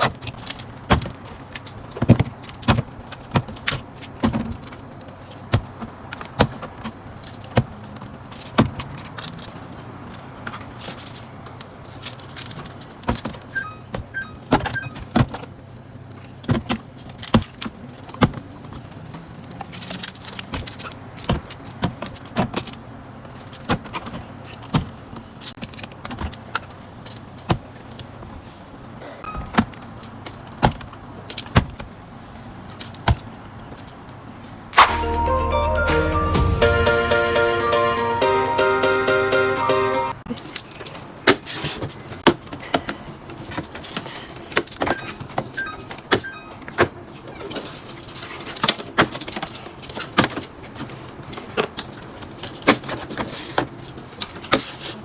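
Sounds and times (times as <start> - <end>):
low steady fridge hum: 0.0 - 35.7, 38.3 - 55.0
plastic containers clinking: 40.4 - 55.0.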